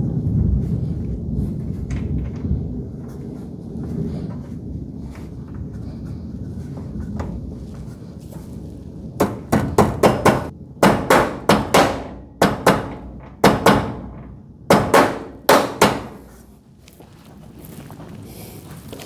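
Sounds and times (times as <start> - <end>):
hammer striking metal: 9.2 - 16.4.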